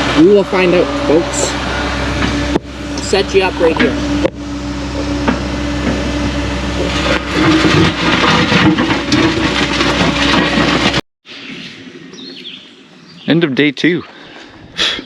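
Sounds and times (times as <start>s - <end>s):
excavator engine running: 0.0s - 11.0s
excavator scraping and clattering: 0.0s - 11.0s.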